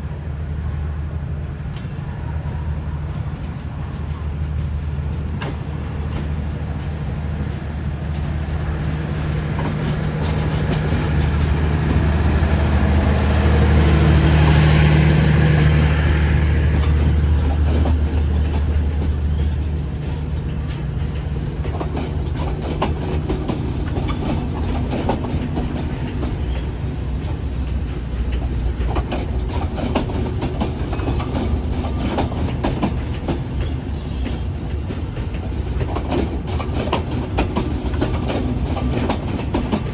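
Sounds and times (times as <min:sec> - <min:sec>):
locomotive engine drone: 0:00.0 - 0:39.9
wheel clicks over rail joints: 0:09.4 - 0:39.9.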